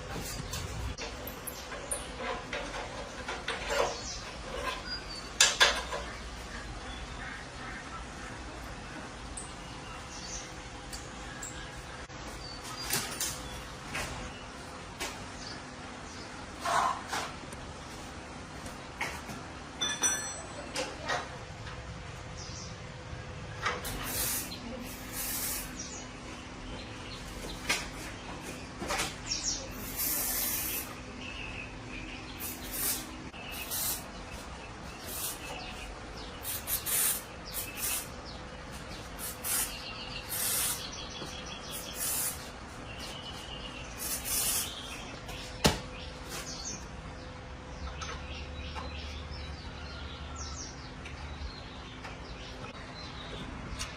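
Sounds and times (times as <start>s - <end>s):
short hissing strokes: 23.8s - 25.9s, 29.7s - 31.0s, 32.4s - 34.1s, 34.9s - 35.6s, 36.4s - 38.2s, 38.9s - 41.0s, 41.6s - 42.5s, 43.9s - 44.8s.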